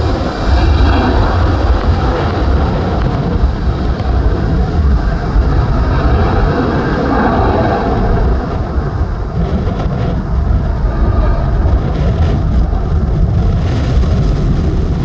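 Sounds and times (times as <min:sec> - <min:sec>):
jet engines roaring at takeoff: 0:00.0 - 0:15.0.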